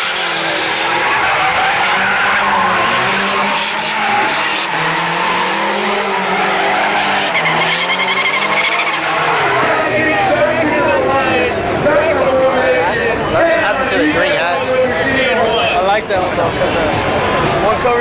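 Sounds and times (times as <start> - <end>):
tyres squealing: 0.0 - 10.3
car engine running hard: 0.0 - 18.0.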